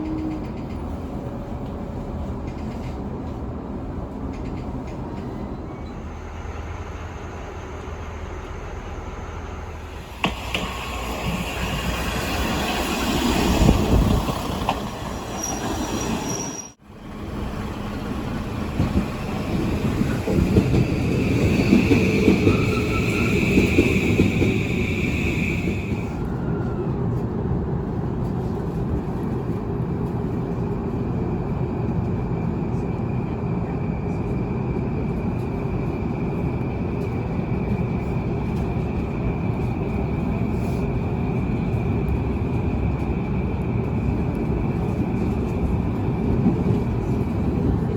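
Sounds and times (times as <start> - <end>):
train running on rails: 0.0 - 47.9
high wheel squeal: 15.0 - 16.8, 20.9 - 26.1.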